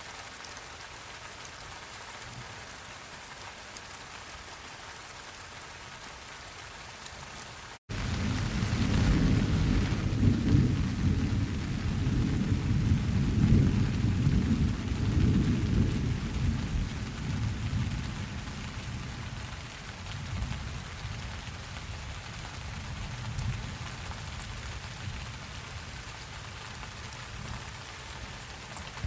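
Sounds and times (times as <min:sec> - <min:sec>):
rain hissing: 0:00.0 - 0:29.0
rolling thunder: 0:07.9 - 0:19.5.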